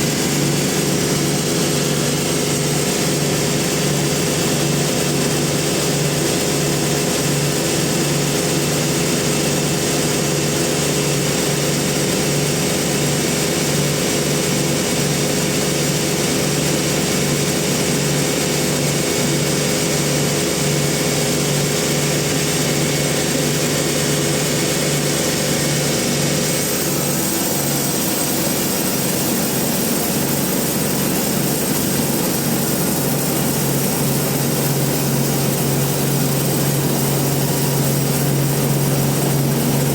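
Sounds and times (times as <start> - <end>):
bandsaw mill humming: 0.0 - 6.3, 16.2 - 39.9.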